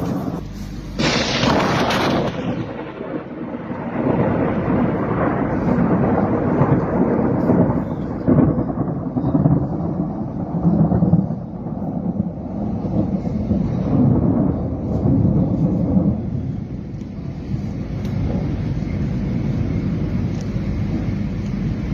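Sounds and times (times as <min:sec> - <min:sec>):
low rolling thunder rumble: 0:00.0 - 0:21.9
thunder clap: 0:00.0 - 0:21.9.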